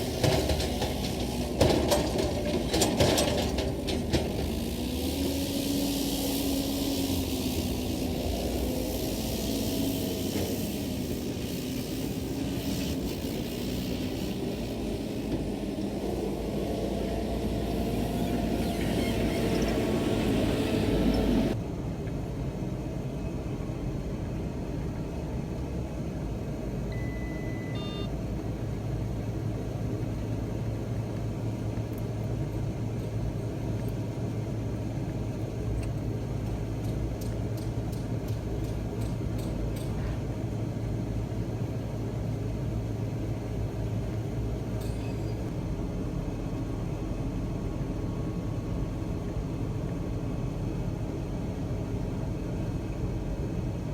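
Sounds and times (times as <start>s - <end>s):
engine running: 0.0s - 21.7s.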